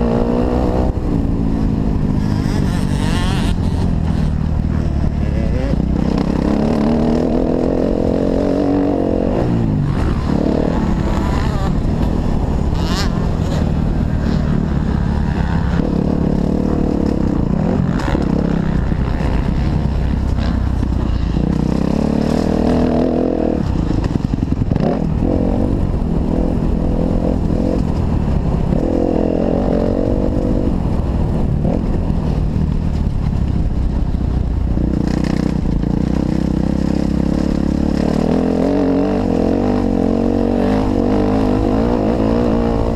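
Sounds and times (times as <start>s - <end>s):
motocross engine revving: 2.1s - 24.0s.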